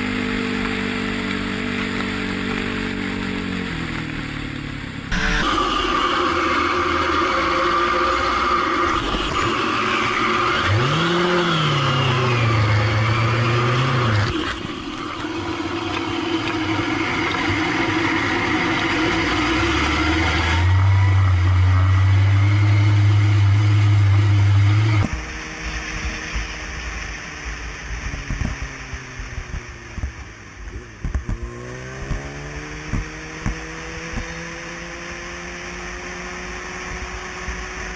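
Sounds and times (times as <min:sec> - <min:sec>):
vehicle engines revving: 0:00.0 - 0:37.9.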